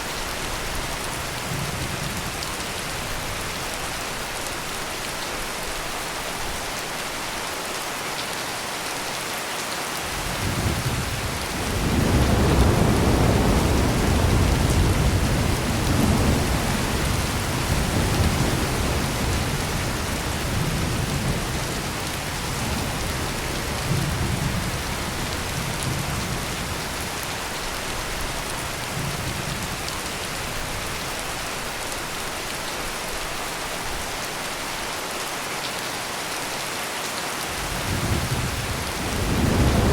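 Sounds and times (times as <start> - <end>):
heavy rain: 0.0 - 39.9
rolling thunder: 10.1 - 27.0, 37.6 - 39.9.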